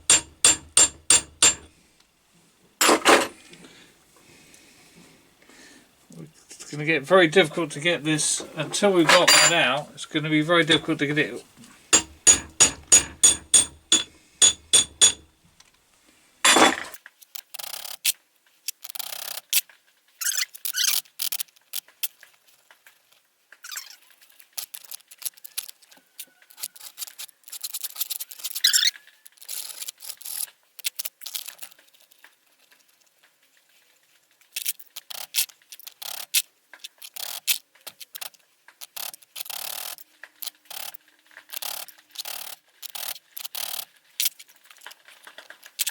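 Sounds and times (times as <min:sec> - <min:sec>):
metal scraping on metal: 0:00.0 - 0:01.7, 0:02.8 - 0:03.4, 0:08.2 - 0:09.8, 0:12.0 - 0:15.2, 0:16.5 - 0:17.0
ringing metal taps: 0:00.0 - 0:01.7, 0:09.1 - 0:09.8, 0:12.0 - 0:15.2.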